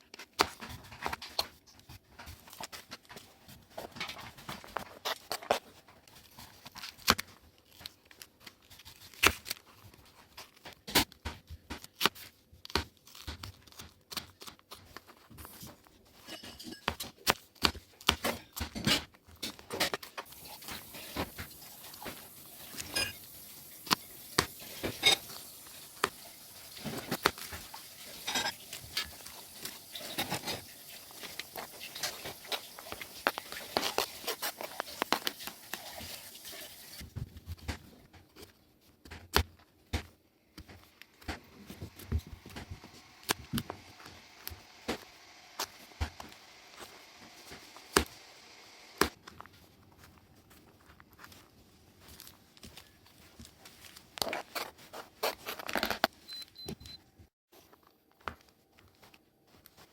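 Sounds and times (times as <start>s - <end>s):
faint steady hiss: 20.2s - 37.0s
campfire wood crackling: 20.3s - 37.0s.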